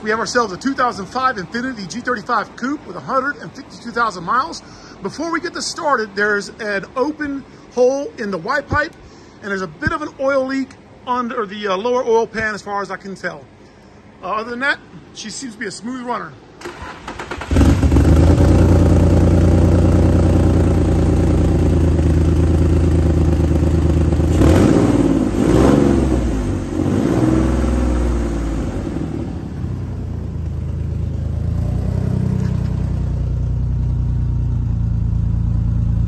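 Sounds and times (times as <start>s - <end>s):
engine revving: 16.6s - 21.6s, 22.2s - 29.9s, 31.4s - 33.1s
car engine idling: 16.6s - 36.0s.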